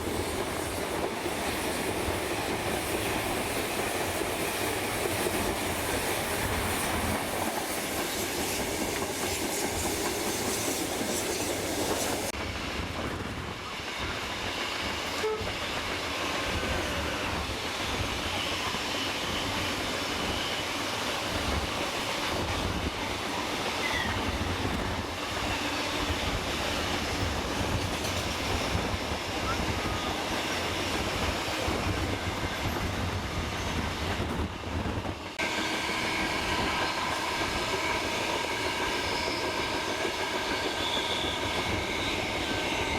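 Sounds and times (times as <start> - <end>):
steam hiss: 0.0 - 12.8, 35.2 - 42.9
steam train rumbling: 0.0 - 42.9.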